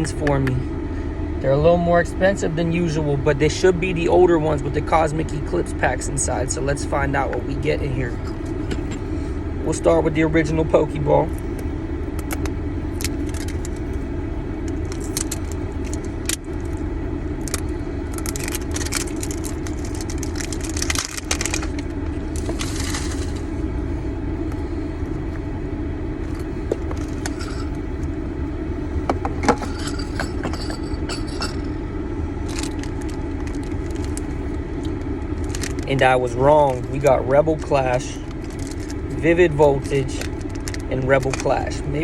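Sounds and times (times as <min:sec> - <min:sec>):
car hum: 0:00.0 - 0:42.0
card packs rustling: 0:12.2 - 0:13.9, 0:14.7 - 0:16.8, 0:17.4 - 0:23.4, 0:32.4 - 0:41.8.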